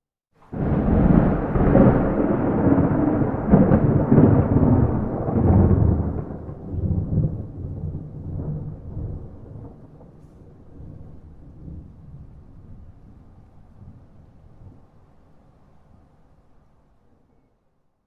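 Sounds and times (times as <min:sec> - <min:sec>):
thunderclap rumbling and crackling: 0:00.5 - 0:14.9.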